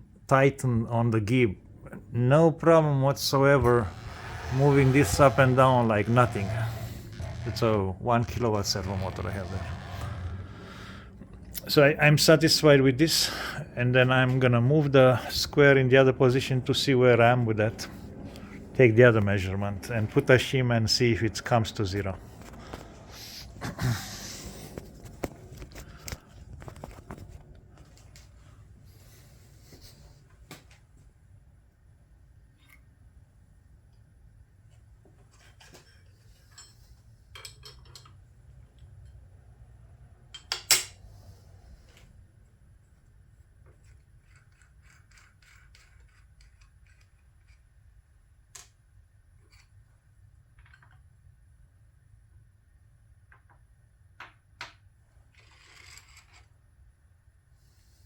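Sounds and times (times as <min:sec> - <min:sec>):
low steady hum: 0:00.0 - 0:29.9
metal tools clicking and knocking: 0:37.4 - 0:38.2, 0:40.4 - 0:41.0.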